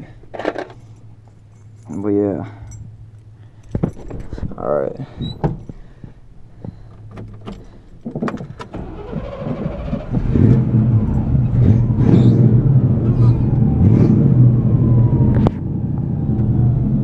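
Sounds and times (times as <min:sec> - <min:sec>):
starter cranking: 0:08.6 - 0:10.7
loud engine running: 0:08.8 - 0:15.2.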